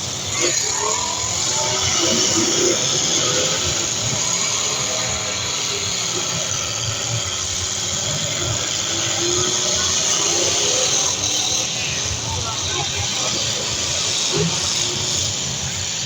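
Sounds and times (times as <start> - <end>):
car engines revving: 0.0 - 16.0.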